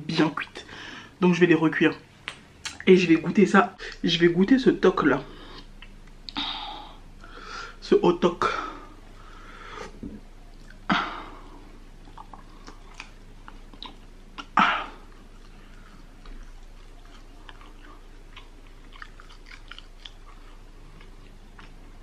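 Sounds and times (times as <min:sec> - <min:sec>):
wet mouth clicks: 0:02.3 - 0:02.8, 0:05.6 - 0:06.4, 0:12.0 - 0:14.6
close chewing: 0:10.4 - 0:10.9, 0:11.6 - 0:22.0.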